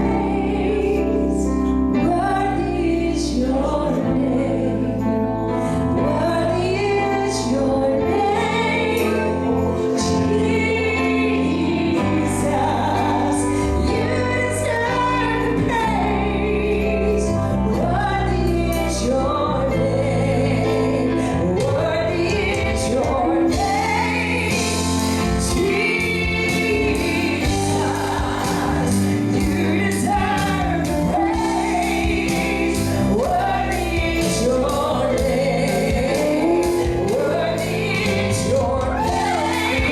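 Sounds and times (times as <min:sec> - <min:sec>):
voices singing gospel: 0:00.0 - 0:39.9
band with bass and drums: 0:20.7 - 0:39.9.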